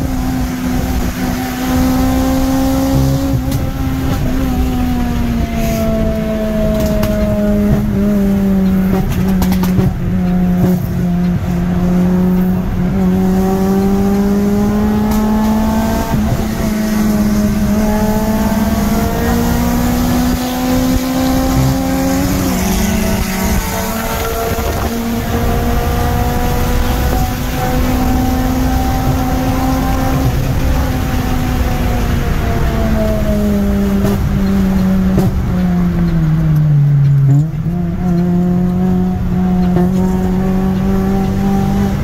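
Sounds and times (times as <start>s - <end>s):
car engine at high revs: 0.0s - 42.0s.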